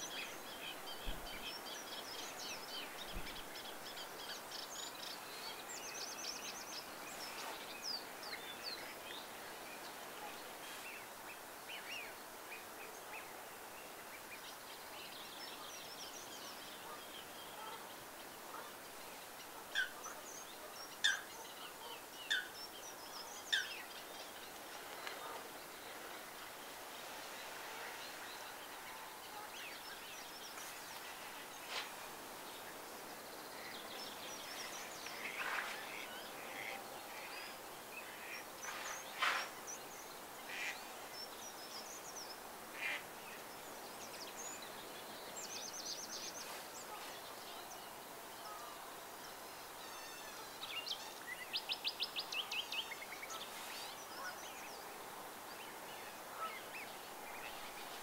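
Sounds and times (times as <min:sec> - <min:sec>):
background hiss: 0:00.0 - 0:58.0
wild birds calling: 0:15.6 - 0:58.0.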